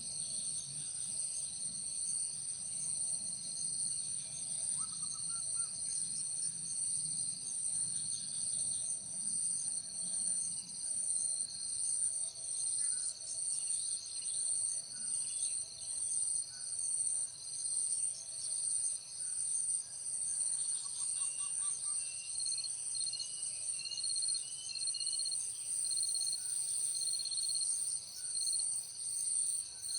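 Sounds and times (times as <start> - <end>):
insects trilling: 20.6 - 29.9.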